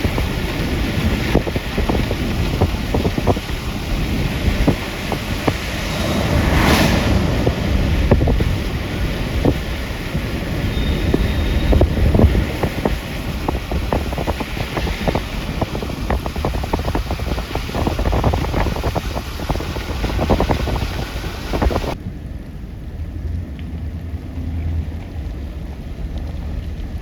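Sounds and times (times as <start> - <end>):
low vehicle rumble: 0.0 - 27.0
wind buffeting microphone: 0.0 - 27.0.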